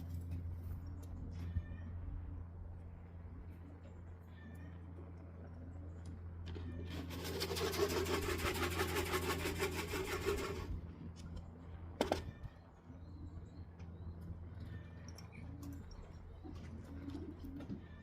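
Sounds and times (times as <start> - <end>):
pigeon wings flapping: 6.9 - 10.7.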